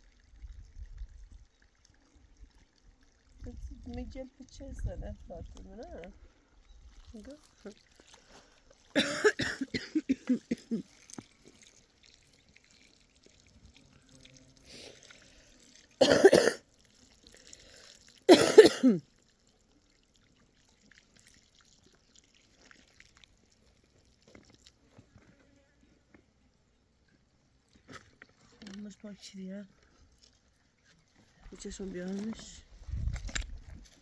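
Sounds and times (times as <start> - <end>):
woman coughing: 9.0 - 10.8, 16.0 - 16.6, 18.3 - 19.0.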